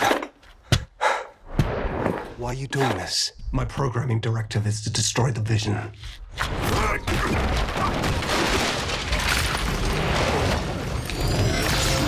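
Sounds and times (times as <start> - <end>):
booming impacts and crashes: 6.4 - 12.0.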